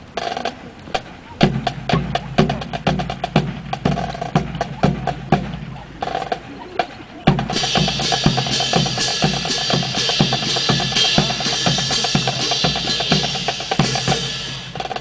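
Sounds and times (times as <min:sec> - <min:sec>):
drum and percussion music: 0:00.0 - 0:15.0
cymbal hiss: 0:07.5 - 0:15.0.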